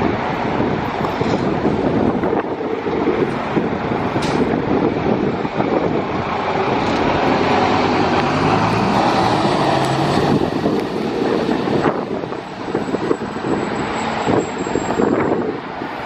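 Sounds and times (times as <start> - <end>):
loud rush of vehicle noise: 0.0 - 16.0
low engine hum: 0.0 - 16.0.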